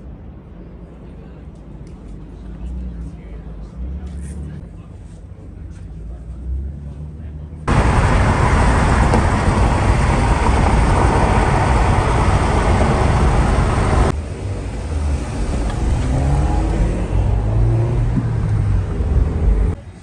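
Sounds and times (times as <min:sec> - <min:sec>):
engine revving up: 0:07.7 - 0:14.2, 0:14.8 - 0:19.8
car engine roaring under acceleration: 0:07.7 - 0:19.8.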